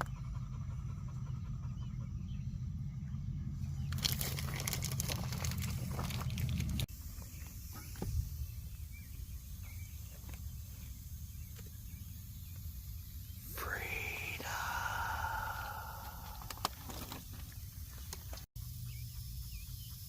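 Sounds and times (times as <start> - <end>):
low steady hum: 8.4 - 20.0.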